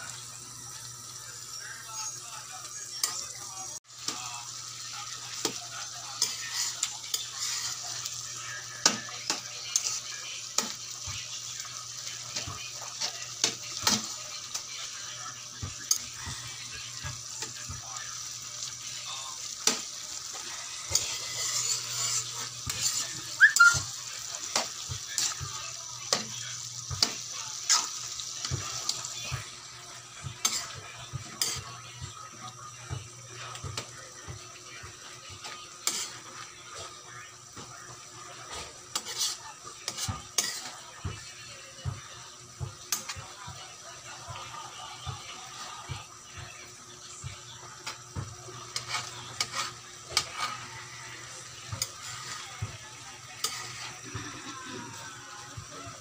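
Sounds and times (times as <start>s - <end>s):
noodles sizzling in pan: 0.0s - 56.0s
metal spatula scraping pan: 6.2s - 8.1s, 19.6s - 25.5s, 30.4s - 31.7s, 35.8s - 36.2s, 38.5s - 40.8s, 48.6s - 52.5s, 53.4s - 54.4s.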